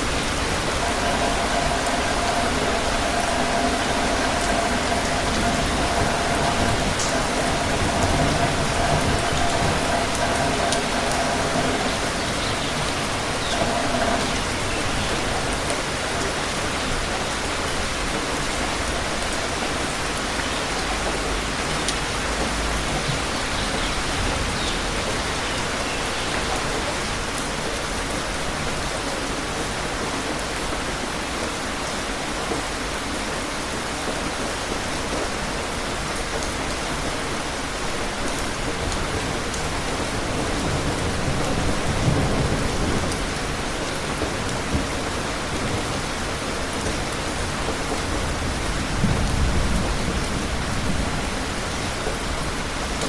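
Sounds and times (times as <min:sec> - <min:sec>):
low rumble: 0:00.0 - 0:16.8
steady rain falling: 0:00.0 - 0:53.0.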